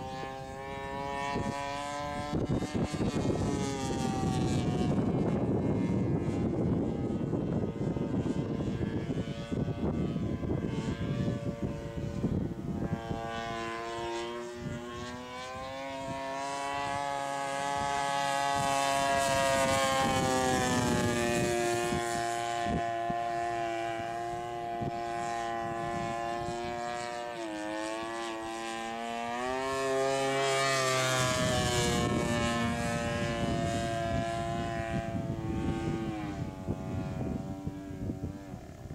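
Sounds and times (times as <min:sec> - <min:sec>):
small aircraft engine droning: 0:00.0 - 0:38.9.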